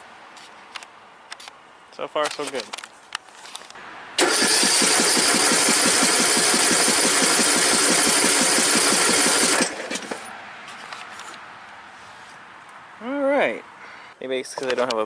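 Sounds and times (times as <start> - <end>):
electric starter cranking engine: 4.2 - 10.3.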